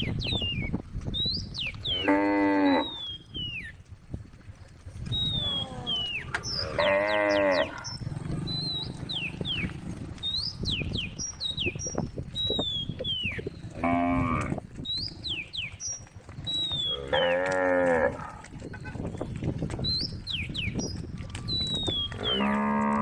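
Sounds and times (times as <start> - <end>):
small birds chirping: 0.0 - 3.8, 4.6 - 23.0
cow mooing: 2.0 - 3.0, 5.4 - 9.4, 13.8 - 14.6, 16.9 - 18.4, 22.2 - 23.0.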